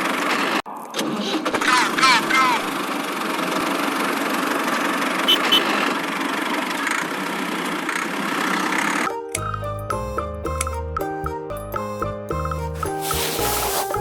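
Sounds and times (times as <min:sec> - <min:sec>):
music: 0:09.0 - 0:14.0.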